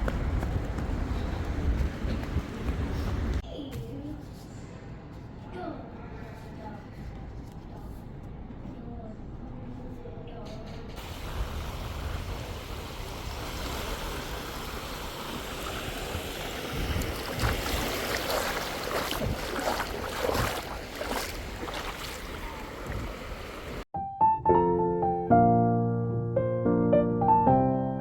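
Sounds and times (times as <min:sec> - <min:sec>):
steady background noise: 0:17.2 - 0:23.8
solo piano music: 0:24.0 - 0:28.0.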